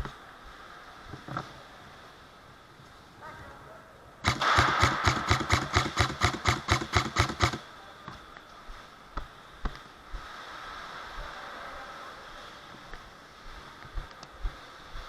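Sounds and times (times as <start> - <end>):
airsoft gun firing: 4.2 - 7.7.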